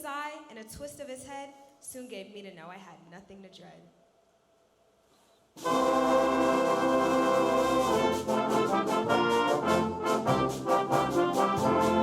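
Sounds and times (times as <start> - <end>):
concert band playing chords: 5.6 - 12.0.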